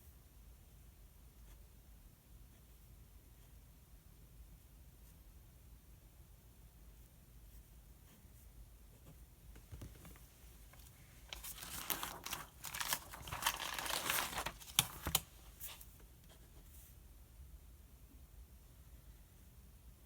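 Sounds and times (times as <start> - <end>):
book pages turning: 9.6 - 16.0.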